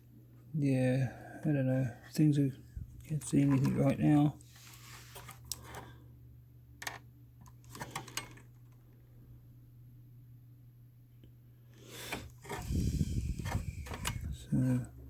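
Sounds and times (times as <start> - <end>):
low steady hum: 0.0 - 15.0
clattering and rubbing: 3.0 - 5.9, 12.0 - 14.4.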